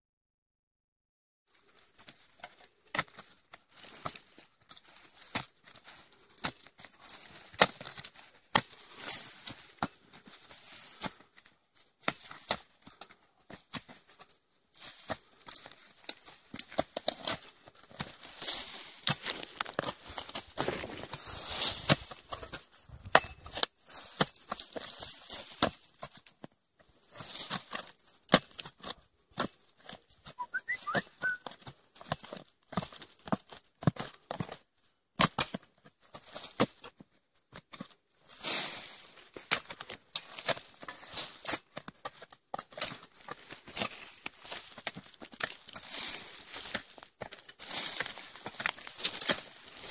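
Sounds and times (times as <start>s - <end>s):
leaves and earth rustling: 1.5s - 49.9s
shovel digging into soil: 15.0s - 25.8s, 38.3s - 49.9s.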